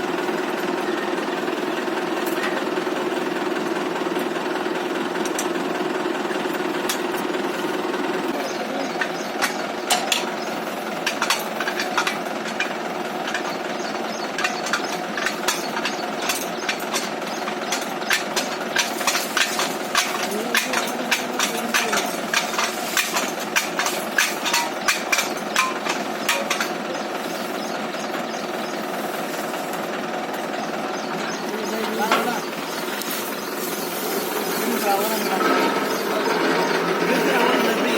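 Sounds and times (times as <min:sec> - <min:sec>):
tractor engine running: 0:00.0 - 0:37.9
knocks and clanks: 0:08.8 - 0:28.5, 0:29.3 - 0:37.9.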